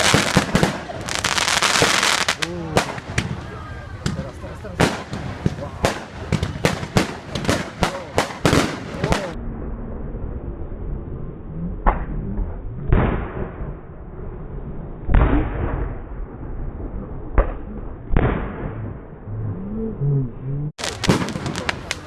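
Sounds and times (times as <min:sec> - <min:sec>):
fireworks exploding: 0:00.0 - 0:09.4, 0:20.8 - 0:22.0
sharp firework crackles: 0:00.0 - 0:09.4, 0:20.8 - 0:22.0.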